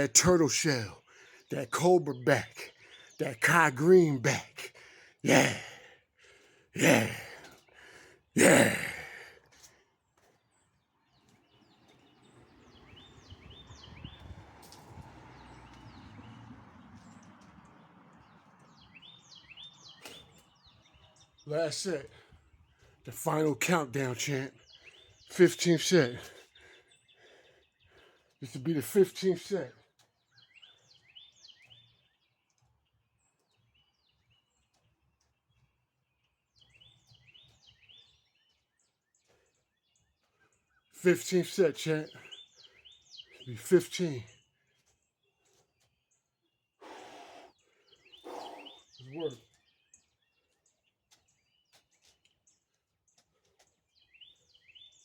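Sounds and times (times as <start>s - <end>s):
bird chirping: 9.4s - 55.0s
faint bird chirps: 44.5s - 55.0s.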